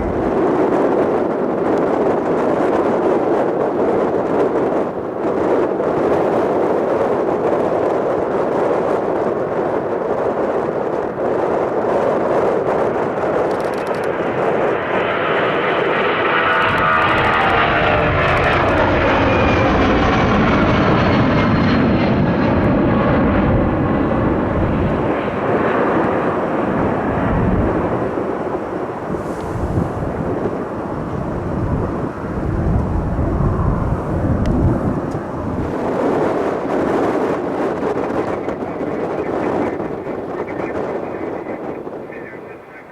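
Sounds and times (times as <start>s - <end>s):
deep rumble: 0.0s - 3.3s, 12.5s - 37.6s
engine whine: 0.0s - 8.4s, 11.0s - 42.0s
jet airliner engines rushing: 0.0s - 42.9s.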